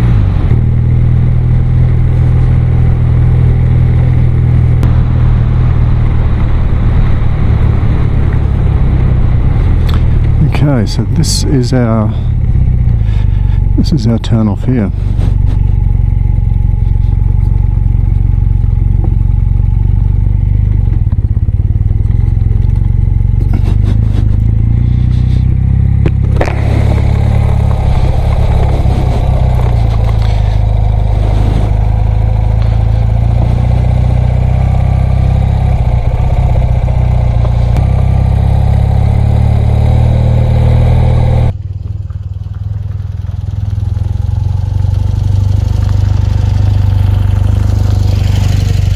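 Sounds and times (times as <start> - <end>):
motorcycle engine running: 0.0 - 48.9
clattering and scraping on dirt track: 12.8 - 33.7.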